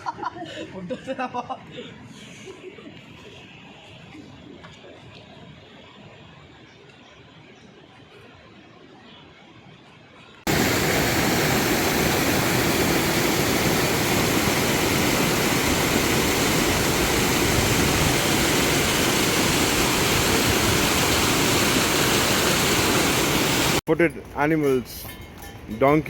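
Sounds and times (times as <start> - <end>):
waterfall rushing: 10.5 - 23.8.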